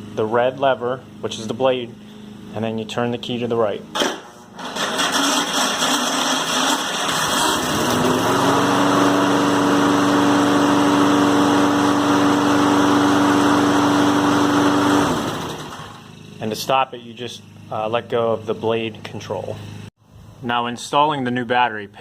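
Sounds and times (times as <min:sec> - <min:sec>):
lawn mower engine starting: 0:03.9 - 0:16.7.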